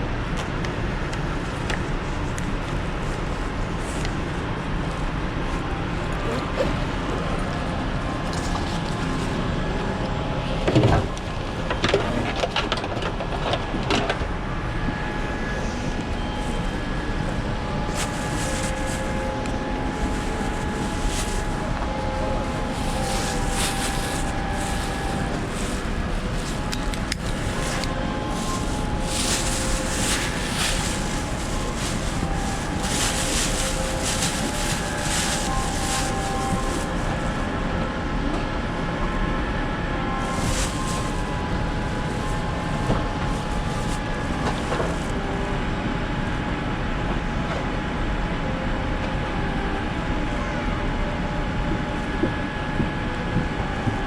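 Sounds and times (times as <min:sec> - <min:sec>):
air-conditioning hum: 0:00.0 - 0:54.0
rustling: 0:17.8 - 0:37.4, 0:40.2 - 0:45.1.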